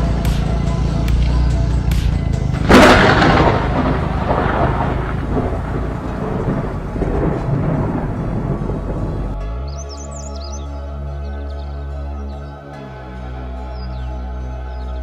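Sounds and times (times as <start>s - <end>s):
thunderclap with rolling rumble: 2.5s - 9.4s.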